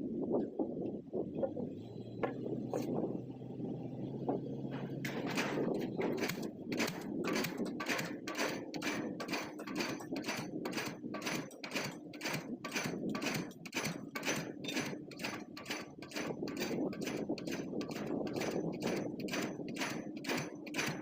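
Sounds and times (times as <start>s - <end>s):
engine drone: 0.2s - 19.8s
pile driver hammer pounding: 4.7s - 21.0s.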